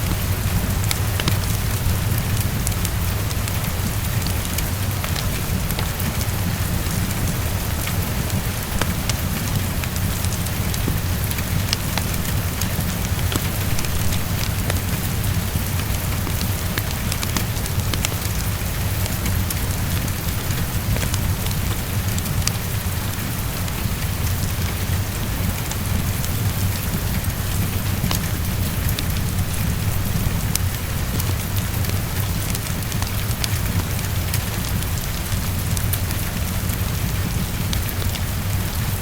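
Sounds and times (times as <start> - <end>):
heavy rainfall: 0.0 - 39.0
low constant rumble: 0.0 - 39.0.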